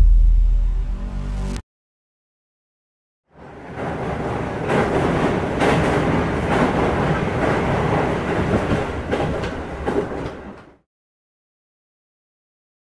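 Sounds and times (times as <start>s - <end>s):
train rumbling on track: 3.3s - 10.8s
wheels clacking over rail joints: 3.4s - 10.8s.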